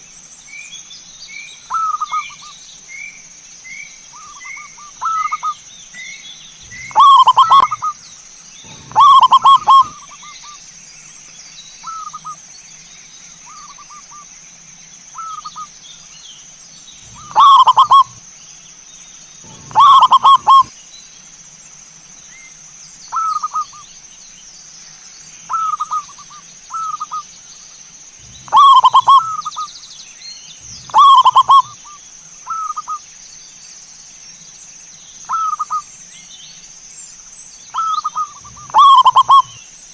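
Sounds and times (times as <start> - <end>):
doves cooing: 6.6 - 8.0, 8.6 - 10.4, 17.0 - 18.2, 19.4 - 20.7, 28.2 - 29.7, 30.6 - 33.0, 37.8 - 39.6
steady high-pitched tone: 8.7 - 10.1, 19.4 - 20.7, 28.2 - 29.6, 30.6 - 31.8.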